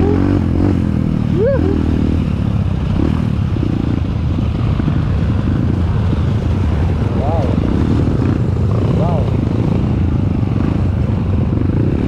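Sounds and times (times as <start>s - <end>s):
motorcycle engine at low revs: 0.0s - 12.0s
rising and falling whoop: 1.2s - 2.0s.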